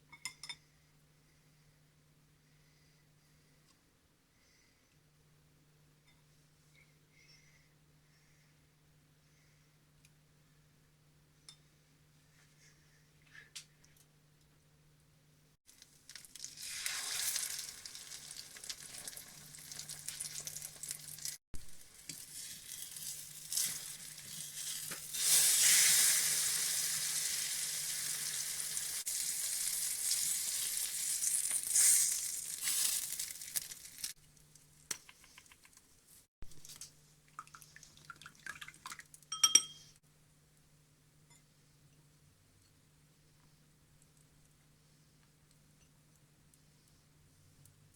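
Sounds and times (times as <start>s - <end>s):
pork chop sizzling in oil: 15.7s - 34.2s
sharp ringing clink: 39.3s - 39.9s.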